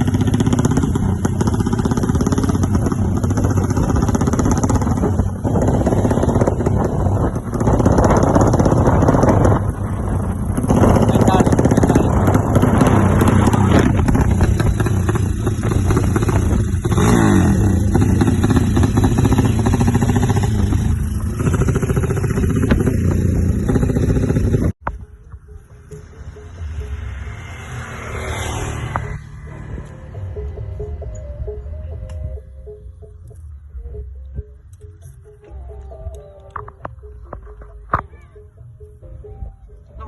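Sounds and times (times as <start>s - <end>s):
motorcycle engine revving: 0.0s - 24.8s, 25.9s - 31.6s.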